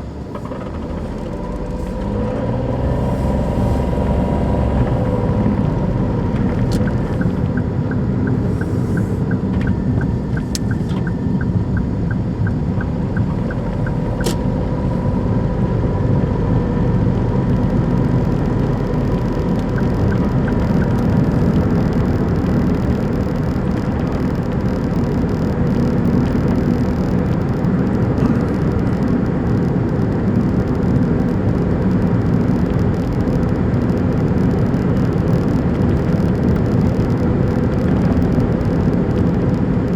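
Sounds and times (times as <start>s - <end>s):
car engine and road noise: 0.0s - 39.9s
sharp clicks: 6.4s - 14.9s
light ticking: 6.4s - 15.3s, 17.5s - 39.9s.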